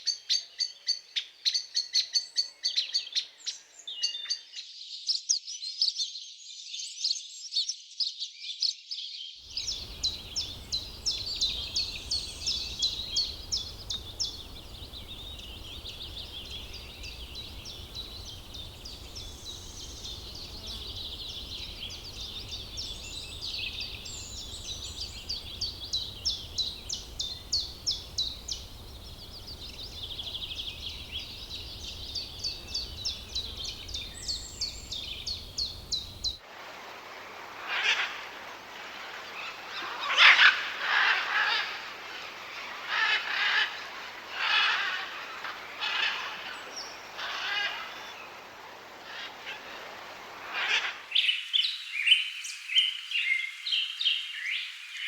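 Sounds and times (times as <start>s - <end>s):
harsh bird calls: 9.5s - 36.4s, 39.3s - 51.4s.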